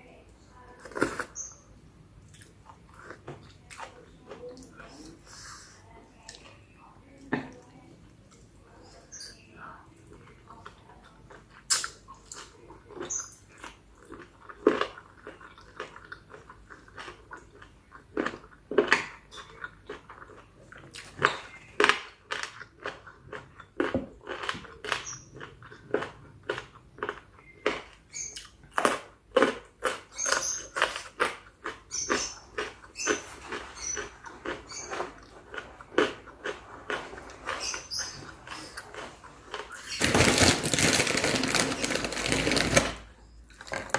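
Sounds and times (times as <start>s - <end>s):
wet chewing and crunching: 10.1s - 42.9s.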